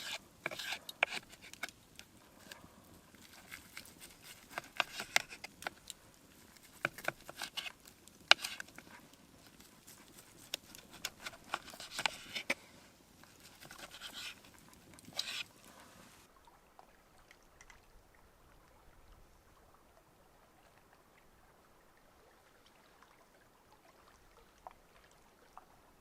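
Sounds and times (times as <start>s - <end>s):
spoon scraping a cooking pot: 0.0s - 1.7s, 3.4s - 5.7s, 6.8s - 8.9s, 10.1s - 12.6s, 13.5s - 14.4s, 15.0s - 15.5s.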